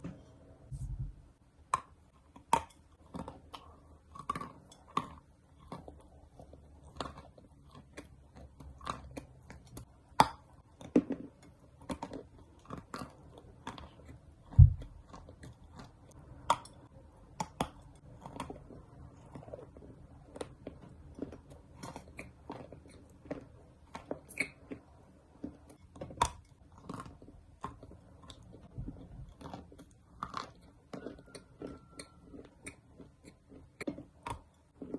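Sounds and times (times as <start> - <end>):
dull low thump: 0.0 - 1.3, 14.6 - 14.9
chewing dry clay crunches: 1.6 - 34.9.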